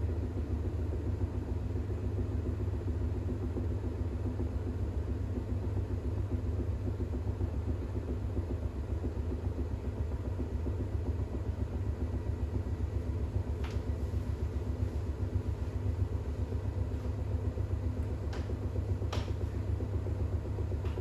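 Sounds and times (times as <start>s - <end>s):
washing machine drum spinning: 12.1s - 21.0s.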